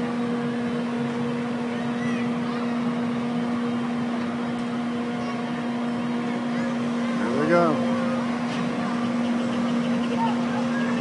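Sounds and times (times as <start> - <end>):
busy background noise: 0.0 - 11.0
carnival ride machinery hum: 0.0 - 11.0.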